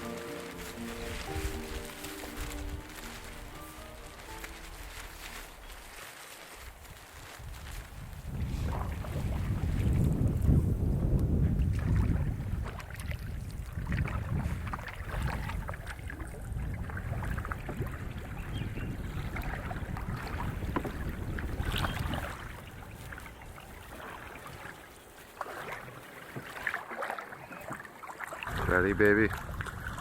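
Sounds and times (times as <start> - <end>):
canoe splashing and knocking: 0.0 - 6.5, 8.3 - 30.0
wind buffeting microphone: 6.6 - 24.6, 28.4 - 30.0.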